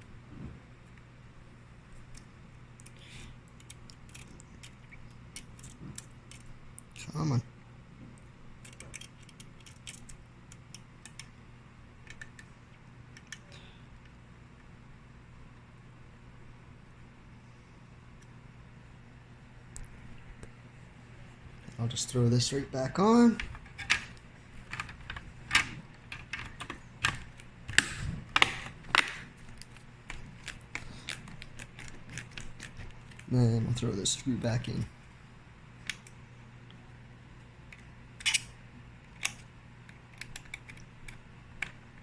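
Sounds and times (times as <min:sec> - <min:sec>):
screwdriver clicks and ticks: 0:08.6 - 0:11.3, 0:37.7 - 0:38.5.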